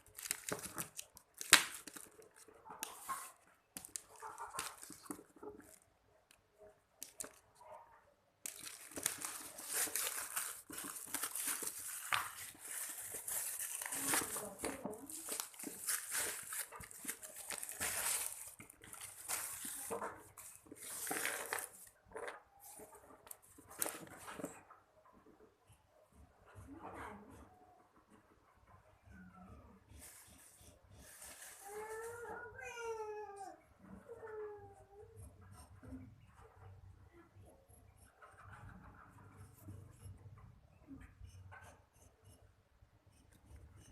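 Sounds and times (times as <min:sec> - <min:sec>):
packaging crinkling: 0:00.0 - 0:05.8, 0:07.0 - 0:07.4, 0:08.4 - 0:22.3.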